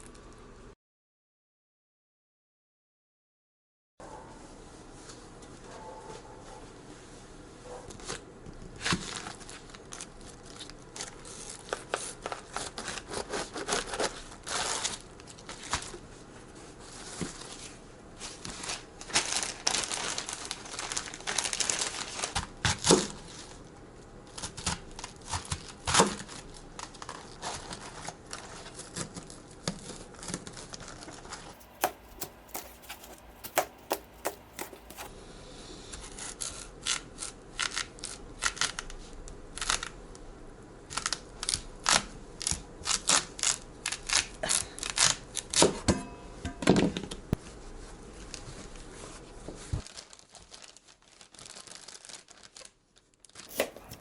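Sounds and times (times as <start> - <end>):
crinkling and tearing: 18.5 - 22.4, 31.6 - 35.1, 49.8 - 54.0.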